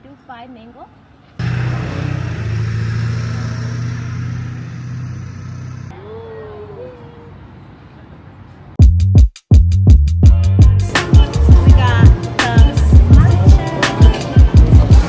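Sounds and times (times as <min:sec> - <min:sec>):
vehicle engine hum: 0:01.4 - 0:08.8.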